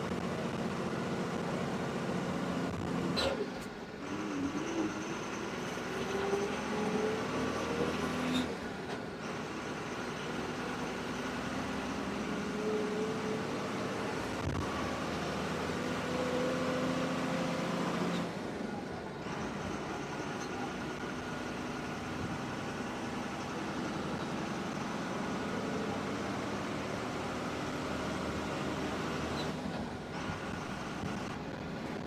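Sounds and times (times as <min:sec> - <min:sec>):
bus engine with road noise: 0:00.0 - 0:32.0.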